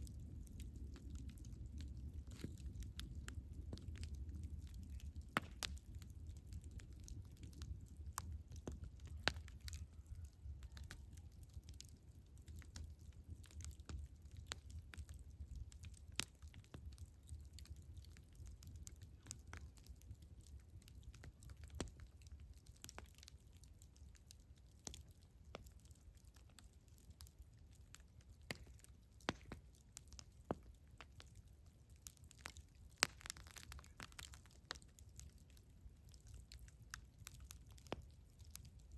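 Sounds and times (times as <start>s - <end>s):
faint low rumble: 0.0s - 15.8s
burning wood popping and snapping: 0.0s - 38.9s.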